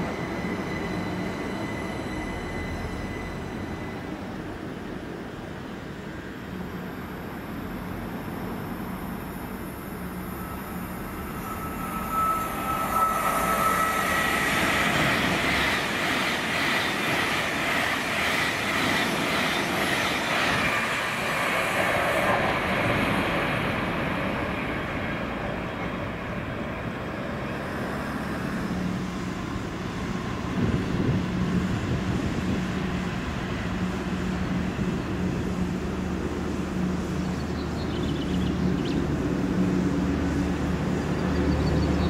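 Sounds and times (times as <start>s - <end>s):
train rolling on rails: 0.0s - 42.0s
high whine: 9.1s - 16.6s.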